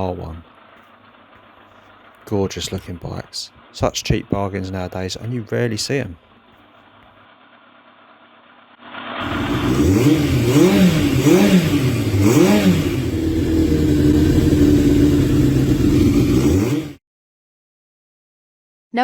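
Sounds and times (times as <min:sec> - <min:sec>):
motorcycle engine revving: 0:09.0 - 0:17.0.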